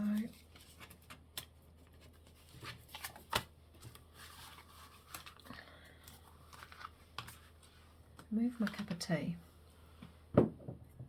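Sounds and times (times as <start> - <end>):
paper rustling: 0.0 - 7.9.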